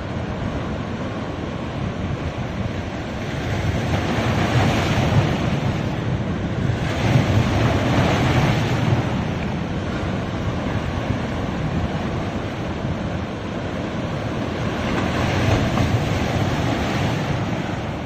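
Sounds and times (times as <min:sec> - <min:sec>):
ocean waves breaking on beach: 0:00.0 - 0:18.0.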